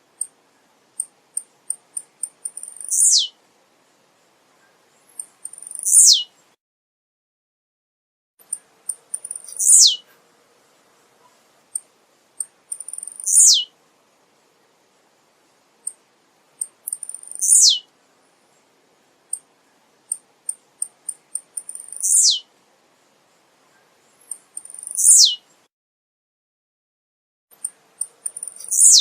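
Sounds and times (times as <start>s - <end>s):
bird singing: 0.2s - 3.4s, 4.6s - 6.6s, 8.4s - 10.0s, 12.4s - 13.7s, 16.6s - 22.5s, 23.6s - 25.7s, 27.6s - 29.0s.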